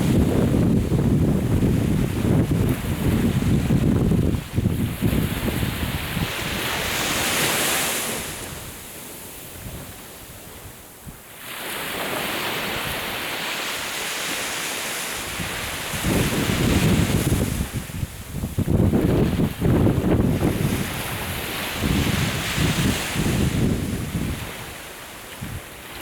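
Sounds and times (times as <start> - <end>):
wind buffeting microphone: 0.0 - 7.6, 15.2 - 26.0
sea waves washing ashore: 0.0 - 26.0.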